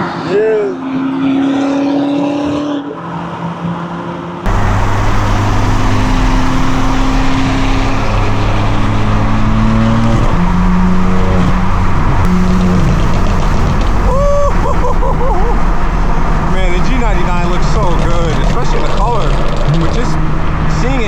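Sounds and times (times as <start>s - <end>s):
straight-piped car exhaust: 4.5s - 21.0s.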